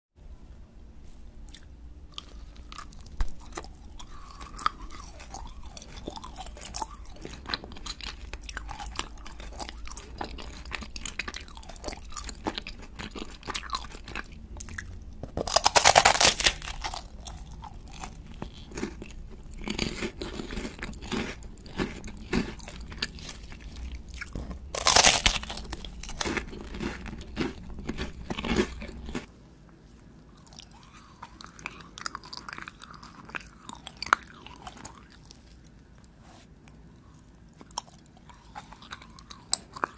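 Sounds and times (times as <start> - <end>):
chewing gummy candy: 1.5 - 29.3, 30.3 - 39.9
crunchy chewing: 1.5 - 29.3, 30.3 - 39.9
crisp wafer bites: 15.2 - 23.1, 23.9 - 29.2.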